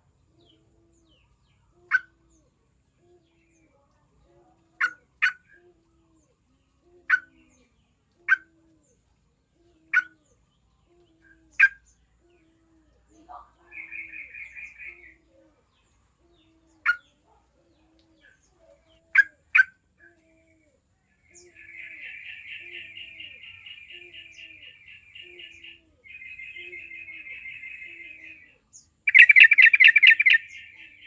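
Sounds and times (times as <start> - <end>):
bird calling sharp notes: 6.8 - 8.8, 21.4 - 31.0.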